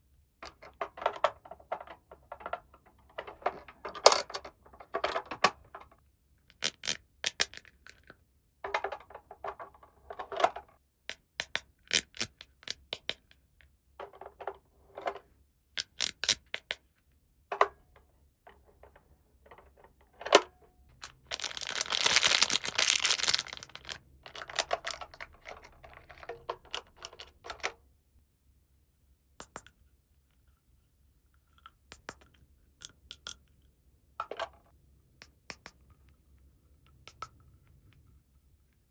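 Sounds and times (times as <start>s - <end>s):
plastic toy parts clicking: 0.5s - 8.1s, 8.7s - 13.2s, 15.8s - 16.8s, 18.8s - 27.8s
packaging rustling: 21.0s - 26.3s.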